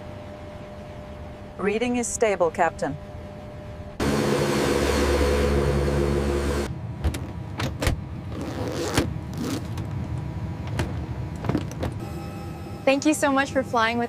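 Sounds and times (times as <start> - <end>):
loud engine drone: 4.0 - 6.9, 12.0 - 14.0.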